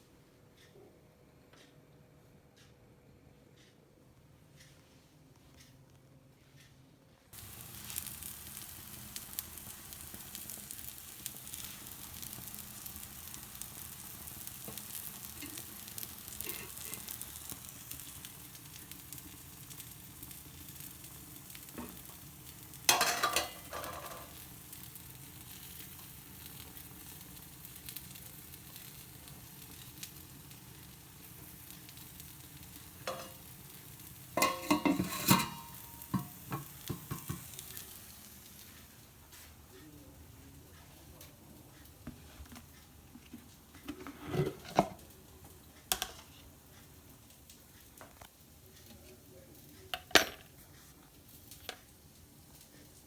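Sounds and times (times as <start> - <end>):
food sizzling in a pan: 7.3 - 39.6, 43.9 - 53.0
utensil clattering against pan: 22.9 - 24.3, 34.4 - 37.5.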